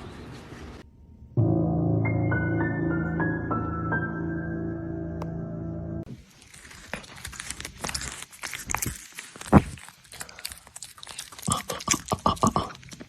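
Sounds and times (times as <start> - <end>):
soft ambient music: 1.2 - 6.1
rustling and crinkling: 6.1 - 11.6.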